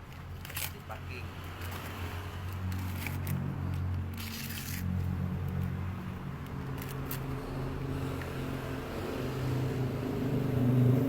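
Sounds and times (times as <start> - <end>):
handling clicks and scrapes: 0.0 - 5.7, 6.4 - 7.4.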